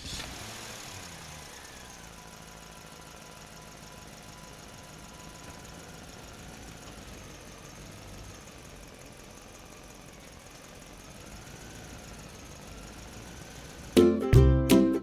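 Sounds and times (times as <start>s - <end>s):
engine-like running hum: 0.0s - 14.0s.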